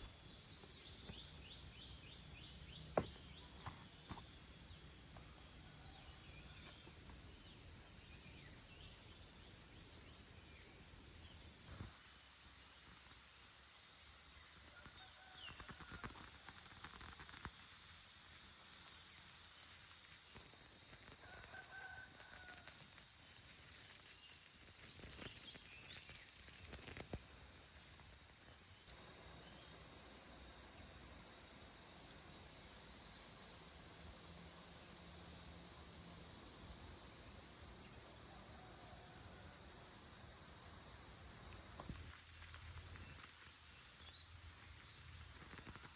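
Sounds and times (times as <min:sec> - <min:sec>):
crickets droning: 0:00.0 - 0:45.9
rooster crowing: 0:21.2 - 0:22.8.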